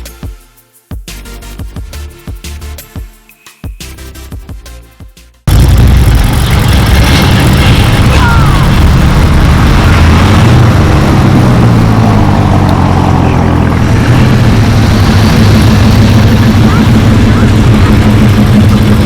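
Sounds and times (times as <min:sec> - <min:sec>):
diesel engine rumble: 0:05.5 - 0:19.0.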